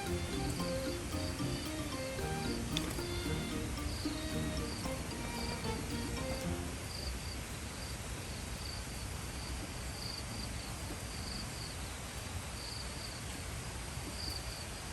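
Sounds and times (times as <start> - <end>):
crickets chirping: 0.0 - 8.0
steady outdoor hiss: 0.0 - 14.9.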